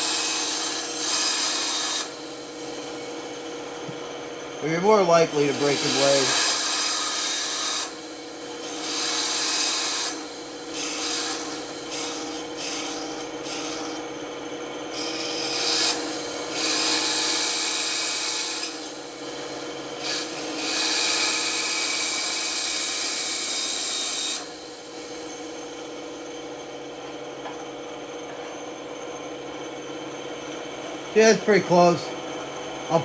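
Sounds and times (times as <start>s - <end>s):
saw blade rasping through wood: 0.0s - 2.6s, 4.6s - 8.0s, 8.6s - 14.0s, 14.9s - 24.5s
band saw humming: 0.0s - 33.0s.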